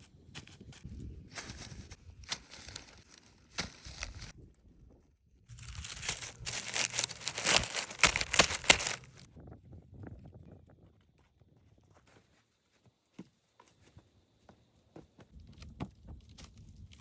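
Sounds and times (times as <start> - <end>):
crinkling and crackling handling: 5.5 - 9.3.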